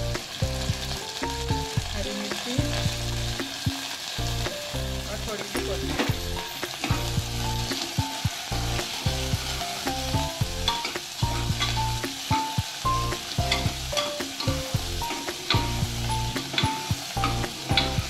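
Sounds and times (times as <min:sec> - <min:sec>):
soft slow background music: 0:00.0 - 0:18.0
vegetables sizzling in hot oil: 0:00.0 - 0:18.0
ladle scraping and clinking on pot: 0:10.6 - 0:12.0, 0:13.5 - 0:18.0.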